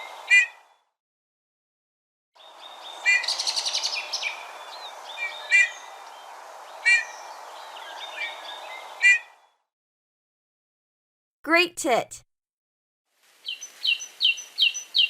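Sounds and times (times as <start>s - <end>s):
background hiss: 13.2s - 15.0s.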